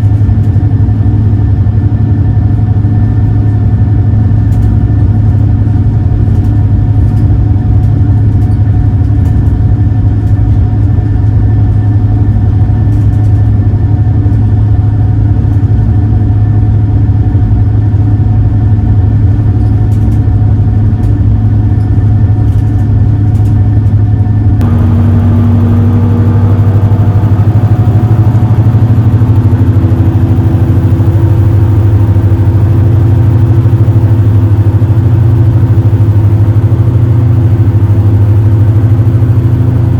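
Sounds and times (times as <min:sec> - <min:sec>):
boat engines droning: 0:23.6 - 0:39.9.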